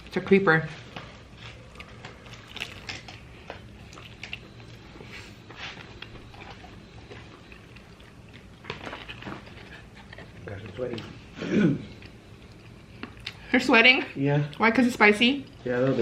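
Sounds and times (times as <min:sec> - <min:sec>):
person chewing food: 0:00.8 - 0:13.5.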